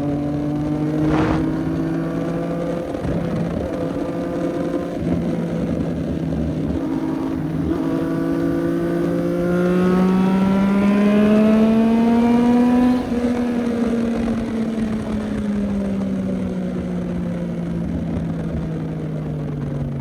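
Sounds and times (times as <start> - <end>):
motorcycle engine accelerating: 0.0 - 16.4.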